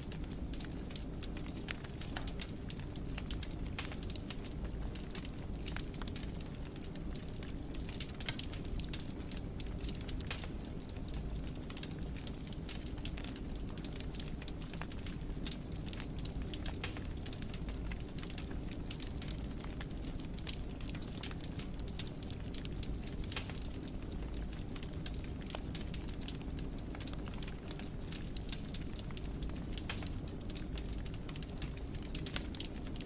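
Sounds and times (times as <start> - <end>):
fire crackling and popping: 0.0 - 33.0
low rumble of flames: 0.0 - 33.0.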